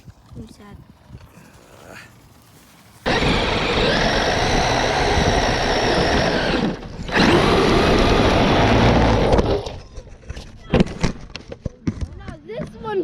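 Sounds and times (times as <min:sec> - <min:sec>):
electric motor whining: 0:03.0 - 0:09.9
chassis and tyres rattling: 0:03.0 - 0:11.6.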